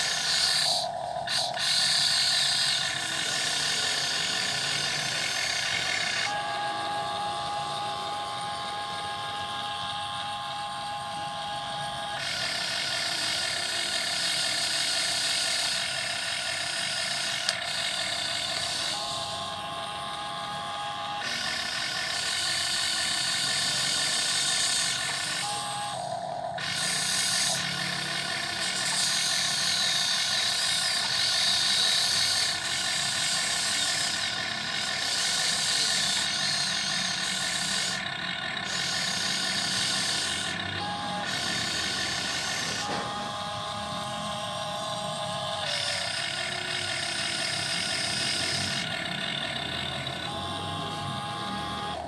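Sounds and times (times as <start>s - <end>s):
electric gear motors whining: 0.0s - 52.0s.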